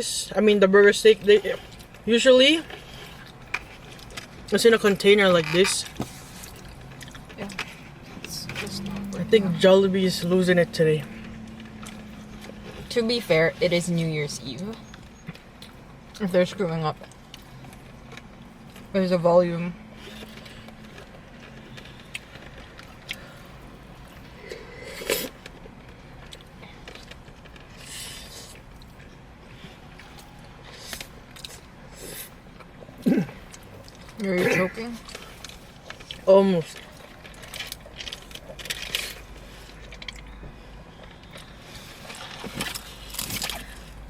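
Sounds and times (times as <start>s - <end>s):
steady low hum: 0.0s - 44.0s
chewing: 1.1s - 16.3s, 16.9s - 18.9s, 19.9s - 44.0s
food packaging clicks and scrapes: 20.0s - 34.2s, 34.9s - 40.4s, 41.0s - 44.0s.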